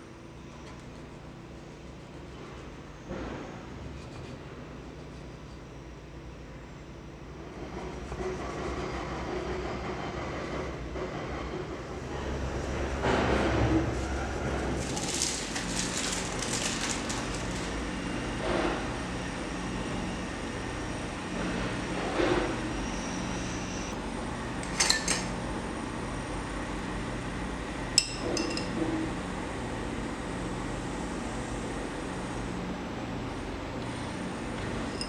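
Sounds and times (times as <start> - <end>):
dishes and utensils clinking: 24.7 - 25.3, 28.0 - 28.8.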